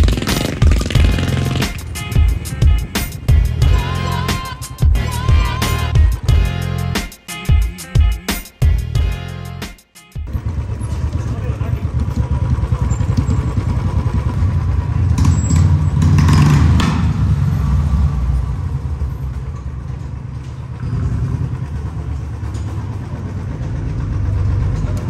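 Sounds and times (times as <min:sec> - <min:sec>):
motorcycle engines idling: 0:00.0 - 0:07.0, 0:10.2 - 0:25.0.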